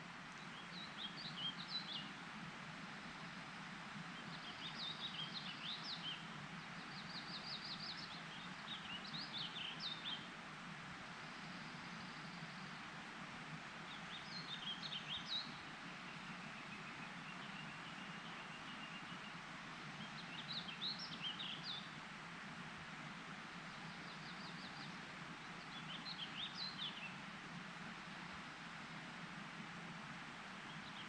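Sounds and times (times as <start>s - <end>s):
steady background hiss: 0.0s - 31.0s
songbird singing: 0.3s - 2.2s, 3.0s - 10.4s, 11.0s - 13.0s, 13.8s - 22.1s, 23.5s - 29.1s, 30.5s - 31.0s.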